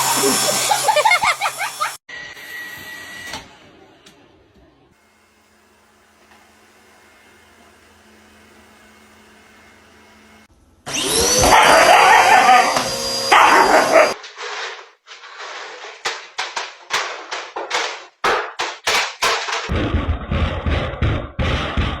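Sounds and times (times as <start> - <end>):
vacuum cleaner whining: 0.0 - 3.6, 5.1 - 14.2
dog barking: 11.4 - 12.7, 13.3 - 14.2.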